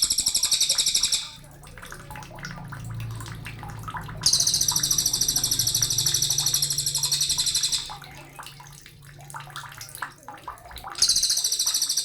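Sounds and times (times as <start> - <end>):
songbird singing a fast trill: 0.0 - 1.4, 4.2 - 7.9.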